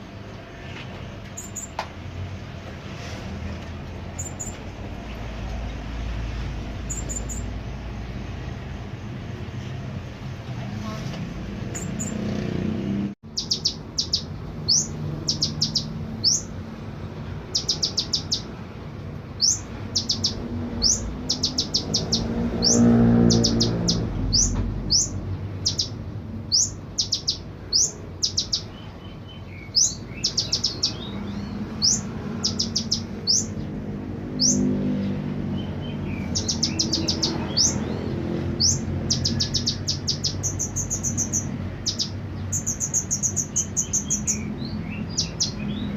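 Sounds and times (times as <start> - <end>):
sunbird singing: 1.3 - 1.8, 4.0 - 5.9, 6.7 - 8.1, 11.7 - 12.5, 13.2 - 18.6, 19.3 - 45.9.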